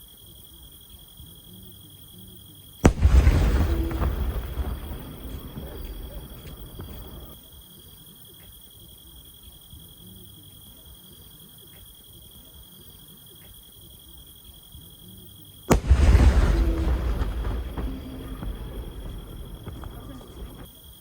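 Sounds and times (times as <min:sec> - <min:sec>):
firework shell bursting: 0:02.9 - 0:07.3, 0:15.7 - 0:20.7.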